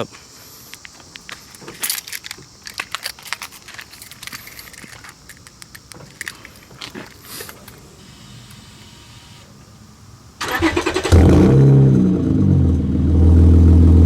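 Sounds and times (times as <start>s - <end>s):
car keys jangling: 0.7s - 7.8s.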